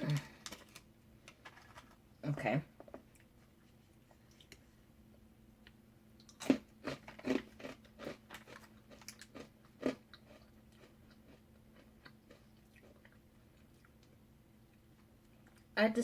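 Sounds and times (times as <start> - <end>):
person chewing crunchy snack: 6.2 - 14.0.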